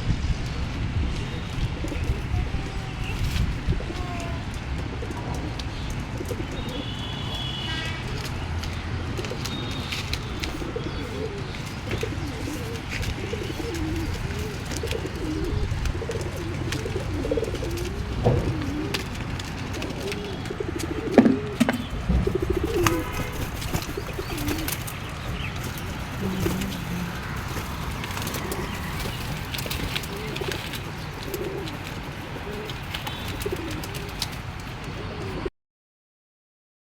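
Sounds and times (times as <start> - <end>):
pigeons cooing: 1.1 - 35.5.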